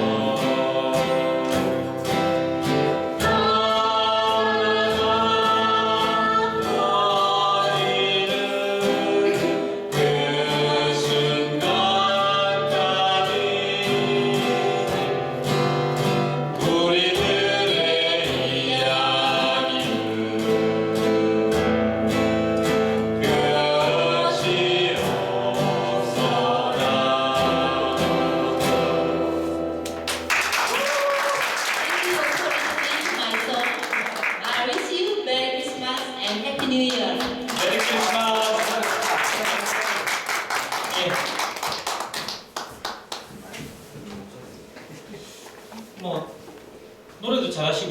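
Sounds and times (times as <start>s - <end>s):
voices singing a folk song: 0.0s - 29.9s
strummed acoustic guitar: 0.0s - 30.3s.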